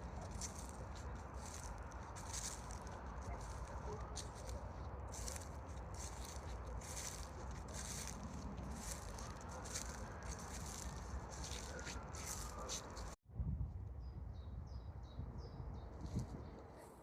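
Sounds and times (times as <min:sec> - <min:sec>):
rustling and crackling: 0:00.0 - 0:13.2.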